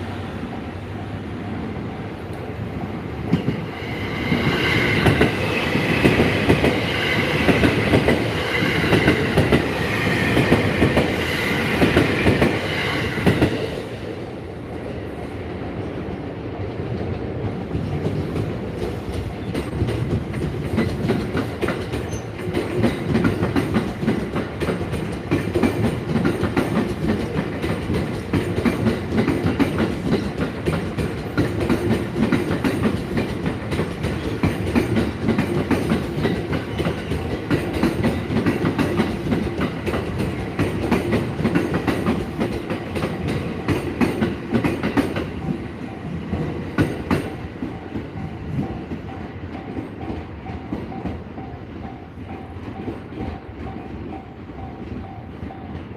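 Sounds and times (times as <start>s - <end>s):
train wheels clattering over rail joints: 17.8s - 45.6s.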